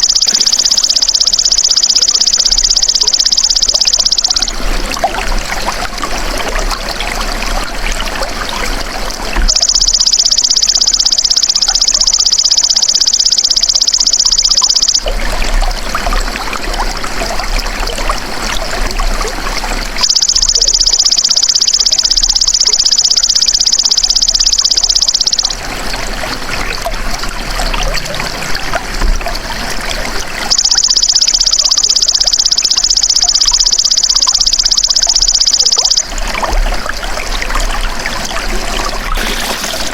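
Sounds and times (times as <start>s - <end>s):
insect high-pitched pulsed buzz: 0.0s - 4.7s, 9.5s - 15.1s, 20.0s - 25.6s, 30.5s - 36.2s
trickle of running water: 0.0s - 39.9s.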